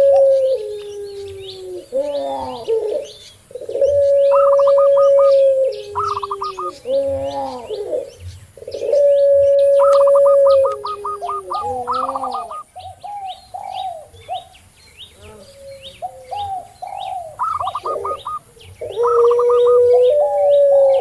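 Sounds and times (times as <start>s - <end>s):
doves cooing: 0.0s - 14.5s, 15.2s - 21.0s
small birds chirping: 0.0s - 21.0s.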